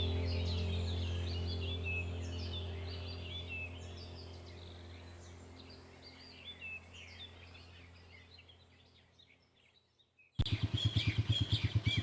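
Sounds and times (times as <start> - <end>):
low hum: 0.0 - 9.5
small birds chirping: 0.0 - 12.0.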